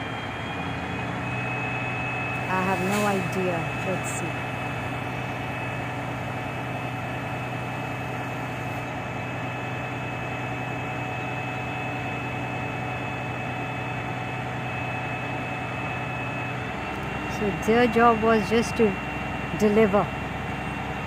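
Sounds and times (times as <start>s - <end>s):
diesel truck engine idling: 0.0s - 21.0s.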